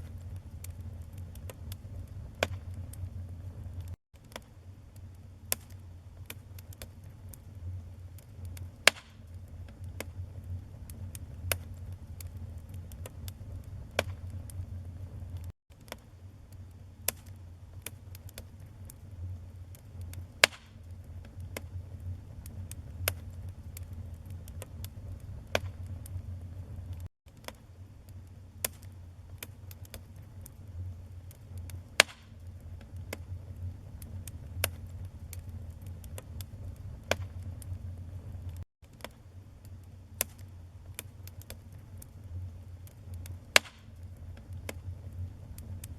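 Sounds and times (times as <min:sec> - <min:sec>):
low rumble of flames: 0:00.0 - 0:45.9
wood fire crackling and popping: 0:00.0 - 0:45.9.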